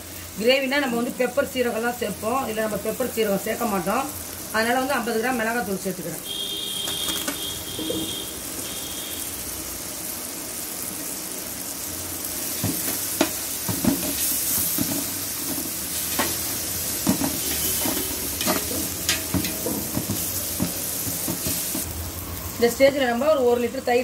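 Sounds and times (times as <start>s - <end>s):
masala sizzling in oil: 0.0s - 24.0s
metal ladle scraping a pot: 14.1s - 21.8s.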